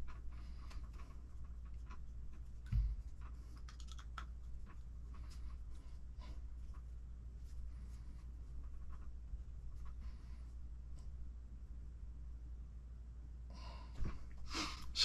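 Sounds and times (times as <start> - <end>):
dull low thump: 2.6 - 3.1.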